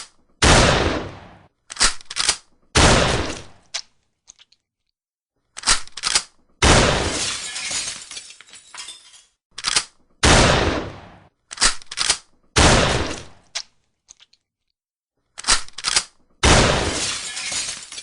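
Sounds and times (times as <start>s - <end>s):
shotgun blasts: 0.4s - 1.5s, 2.8s - 3.6s, 6.6s - 7.2s, 10.2s - 11.3s, 12.6s - 13.4s, 16.4s - 17.1s
shotgun action metallic clicks: 1.7s - 2.5s, 5.5s - 6.4s, 9.6s - 10.0s, 11.5s - 12.4s, 15.3s - 16.3s.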